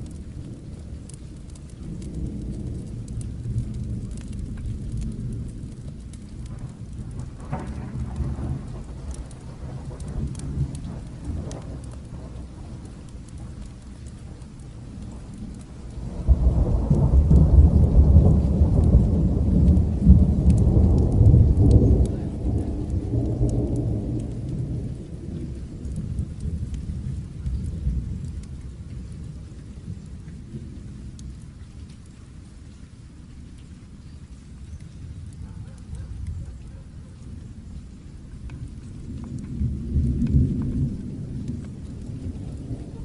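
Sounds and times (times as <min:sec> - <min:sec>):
steady rain: 0:00.0 - 0:43.0
thunder rolling: 0:01.8 - 0:31.2, 0:38.6 - 0:43.0.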